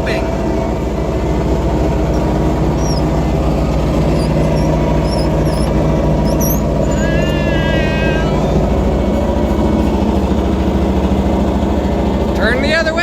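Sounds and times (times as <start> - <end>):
motor boat engine running: 0.0 - 13.0
high wavering squeal: 1.8 - 12.1.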